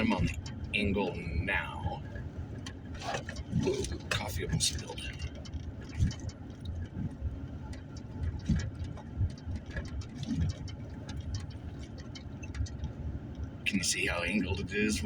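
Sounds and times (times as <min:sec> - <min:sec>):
vehicle engine and tyres rumbling: 0:00.0 - 0:15.0
clicks and rattles: 0:02.0 - 0:13.6.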